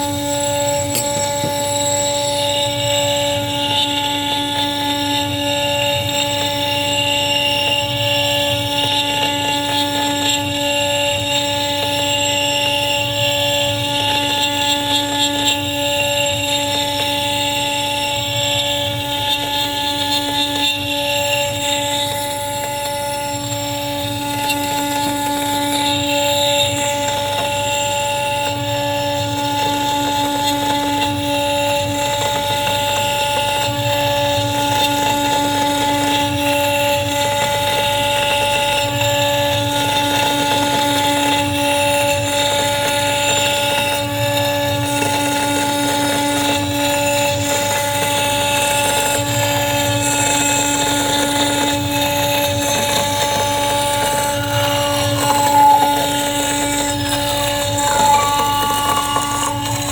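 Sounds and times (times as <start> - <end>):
router spindle whine: 0.0 - 59.9
bit cutting wood: 49.0 - 59.9.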